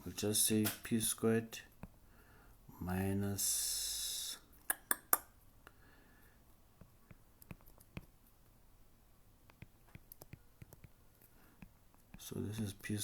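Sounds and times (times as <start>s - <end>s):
handwriting taps and clicks: 6.8s - 8.2s, 9.4s - 11.0s, 11.6s - 12.7s.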